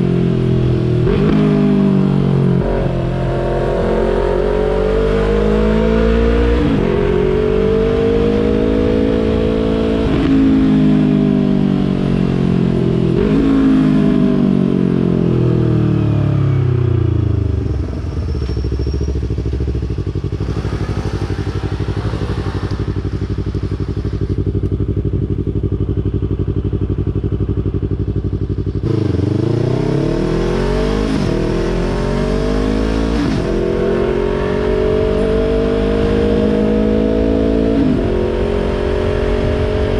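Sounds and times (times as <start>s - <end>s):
motorcycle engine accelerating: 0.0s - 39.9s
motorcycle engine idling: 17.2s - 29.4s.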